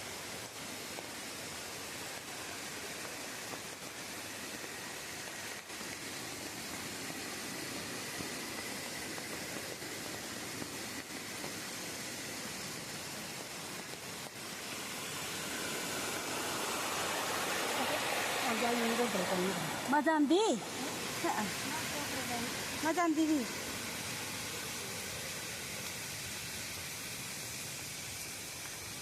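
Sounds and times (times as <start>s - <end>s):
outdoor rushing noise: 7.2s - 23.0s.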